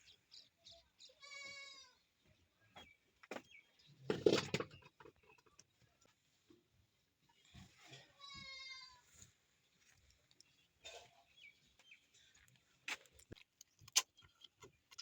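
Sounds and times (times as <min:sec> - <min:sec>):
goat bleating: 0:01.2 - 0:02.0, 0:08.0 - 0:09.1.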